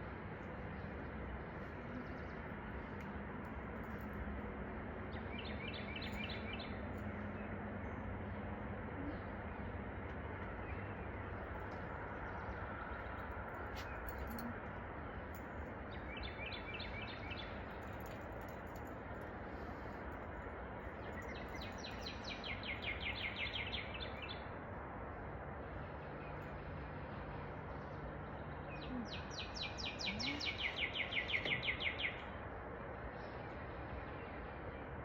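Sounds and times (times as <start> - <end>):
steady background noise: 0.0 - 35.0
bird chirping: 28.4 - 32.4.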